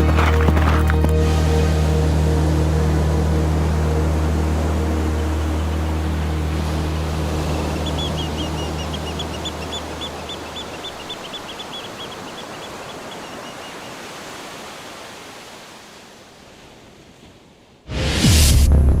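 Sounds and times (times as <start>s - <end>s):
steady outdoor noise: 0.0s - 15.8s
loud rush with deep hum: 1.0s - 11.0s
bird chirping rapidly: 7.3s - 14.0s.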